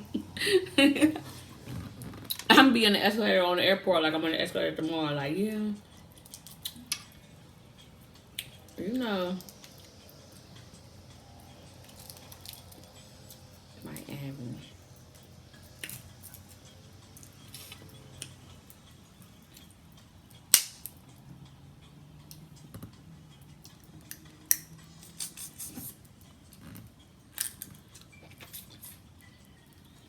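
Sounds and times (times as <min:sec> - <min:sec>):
crab shells cracking: 0:06.1 - 0:07.2, 0:11.8 - 0:13.0, 0:15.6 - 0:16.5, 0:20.5 - 0:21.0, 0:23.7 - 0:25.4, 0:26.6 - 0:29.0.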